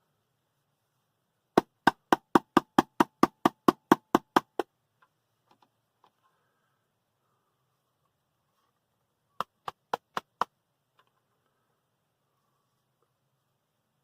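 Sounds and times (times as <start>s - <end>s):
rapid sharp knocks: 1.6s - 4.7s, 9.4s - 10.5s.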